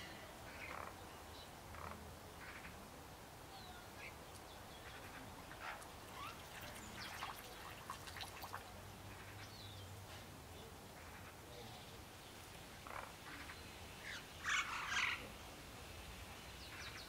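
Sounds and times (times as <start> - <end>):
faint bird chirps: 3.5 - 9.9.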